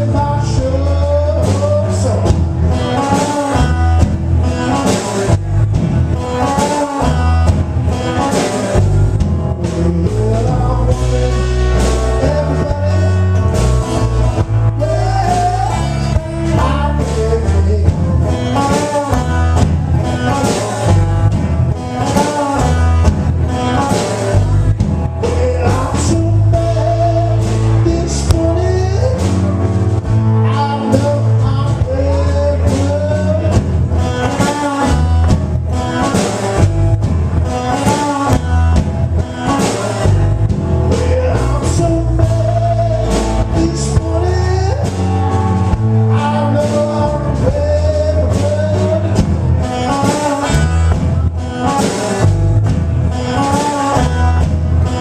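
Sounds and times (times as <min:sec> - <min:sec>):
bass line: 0:00.0 - 0:55.0
drums: 0:00.0 - 0:55.0
electric blues guitar: 0:00.0 - 0:55.0
person singing: 0:06.2 - 0:20.8, 0:21.8 - 0:29.6, 0:30.2 - 0:36.4, 0:37.5 - 0:52.2.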